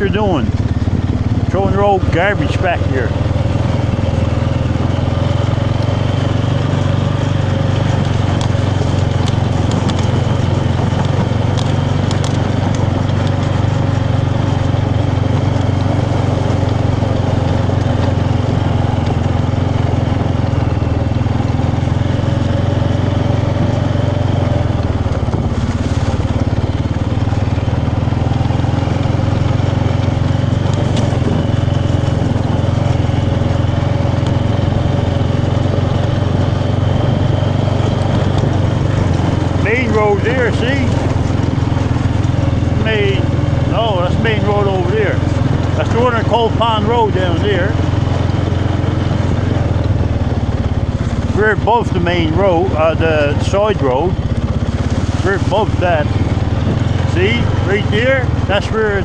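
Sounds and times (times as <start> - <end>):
motorbike engine running: 0.0 - 59.0.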